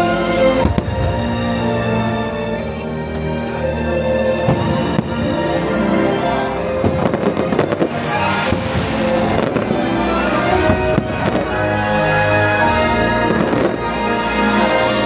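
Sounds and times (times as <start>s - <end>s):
loud show music: 0.0s - 15.0s
fireworks bangs and crackles: 0.5s - 1.6s, 4.4s - 11.8s, 12.4s - 14.3s.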